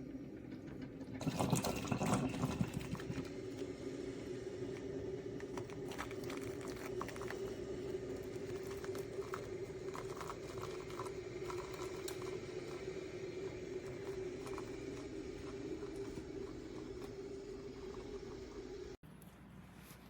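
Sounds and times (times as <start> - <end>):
coffee maker humming: 0.0 - 19.0.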